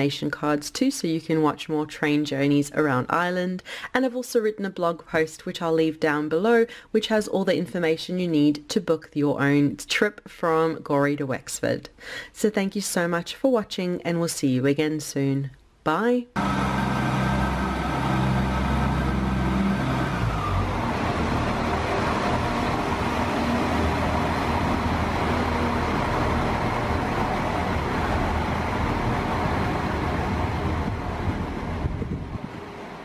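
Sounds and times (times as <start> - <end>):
diesel engine hum: 16.4 - 33.0
high whine: 16.4 - 33.0
train wheels rumbling on rails: 16.4 - 33.0.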